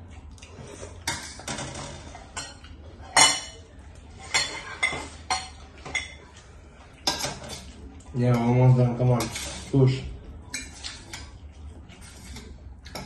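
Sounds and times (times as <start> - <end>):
utensils clinking against a bowl: 0.5 - 13.0.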